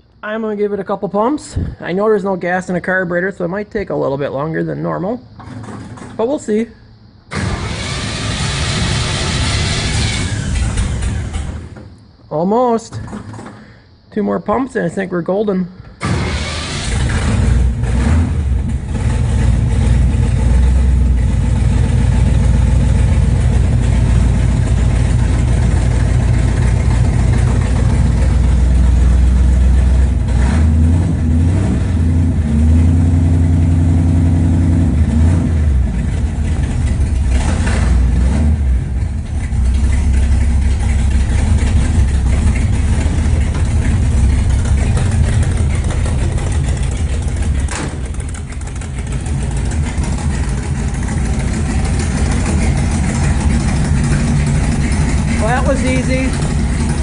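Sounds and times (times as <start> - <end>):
car engine idling and revving: 5.3 - 6.2, 6.9 - 12.2, 16.0 - 57.0.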